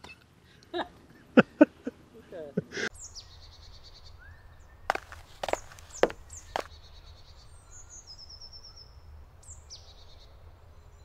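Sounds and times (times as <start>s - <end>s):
songbirds calling: 2.9s - 11.0s
sharp knocks: 4.9s - 6.7s.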